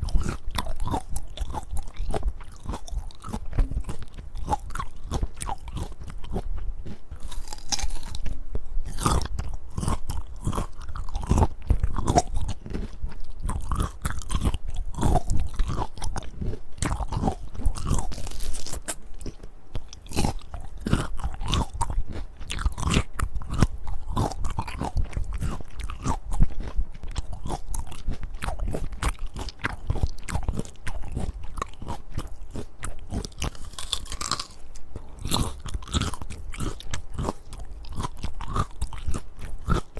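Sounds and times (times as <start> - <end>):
crunching and chewing fruit: 0.0 - 39.9.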